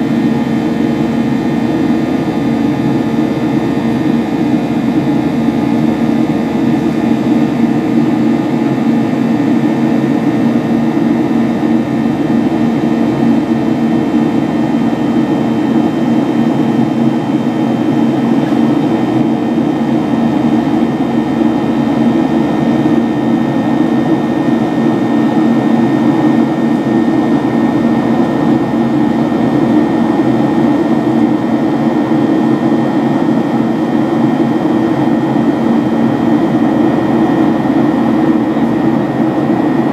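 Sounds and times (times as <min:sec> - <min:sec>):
jet engines humming: 0:00.0 - 0:39.9.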